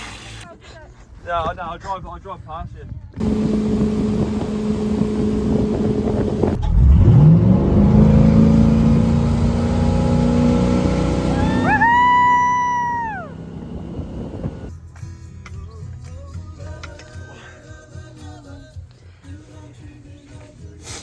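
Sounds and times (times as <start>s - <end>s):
wind and water noise: 2.4s - 7.2s, 12.9s - 14.7s
motorboat engine running: 3.2s - 14.7s
high held tone: 11.2s - 14.7s.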